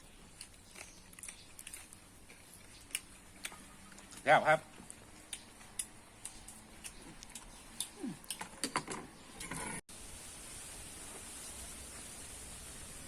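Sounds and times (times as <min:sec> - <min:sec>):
chewing: 0:00.0 - 0:08.6
faint hiss: 0:09.9 - 0:13.0.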